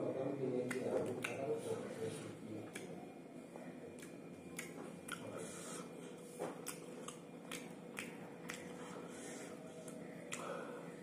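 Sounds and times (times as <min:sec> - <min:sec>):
wet mouth smacks: 0:00.6 - 0:01.4, 0:02.6 - 0:03.0, 0:04.0 - 0:05.3, 0:06.5 - 0:08.8, 0:09.8 - 0:10.5
close-up chewing: 0:02.6 - 0:10.9.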